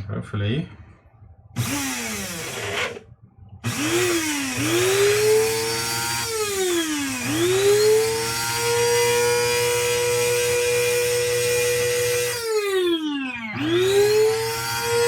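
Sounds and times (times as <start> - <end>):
coffee grinder motor whirring: 1.6 - 3.0, 3.6 - 15.0.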